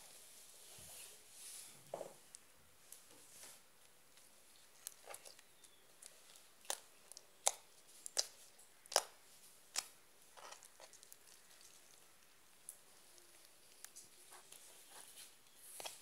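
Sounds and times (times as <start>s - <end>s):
crunchy clicks of beaded slime: 4.8s - 11.8s.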